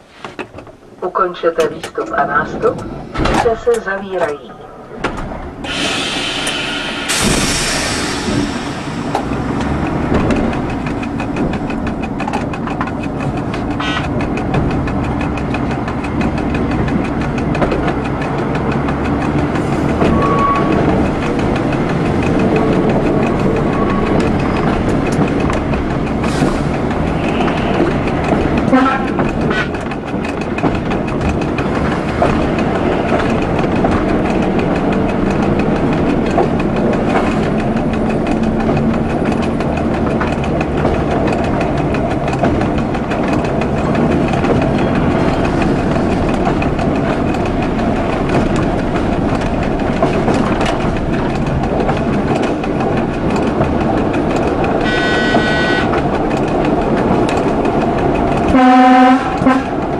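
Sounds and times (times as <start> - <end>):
rail clicks: 0.0 - 59.9
train running noise: 0.0 - 59.9
high-pitched signal tone: 54.8 - 55.9.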